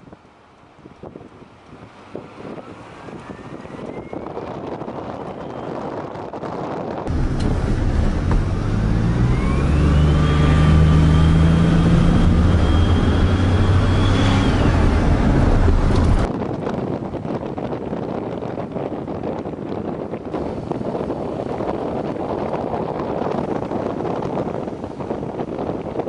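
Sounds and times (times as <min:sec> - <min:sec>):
vehicle engine running loudly: 0:07.1 - 0:16.3.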